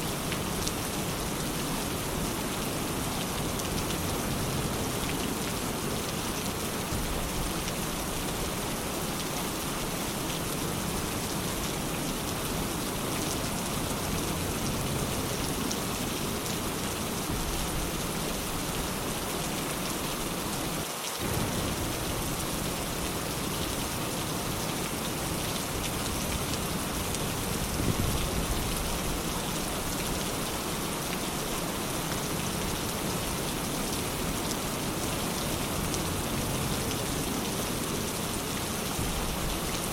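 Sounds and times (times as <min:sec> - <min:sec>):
steady rain falling: 0:00.0 - 0:39.9
low thunder rumble: 0:21.2 - 0:24.6.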